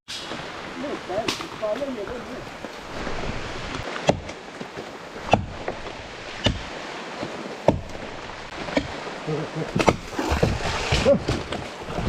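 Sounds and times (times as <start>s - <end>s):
sharp knocks: 4.0s - 5.8s, 6.4s - 6.7s, 7.6s - 8.0s.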